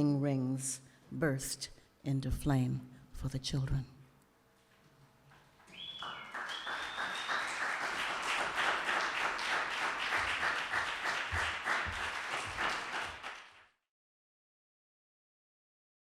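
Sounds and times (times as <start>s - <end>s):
audience applauding: 5.6s - 13.7s
high thin whistle tone: 5.7s - 7.7s.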